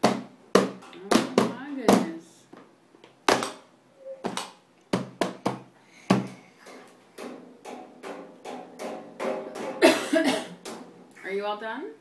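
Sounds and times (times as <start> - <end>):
sharp knocks: 4.3 - 11.0.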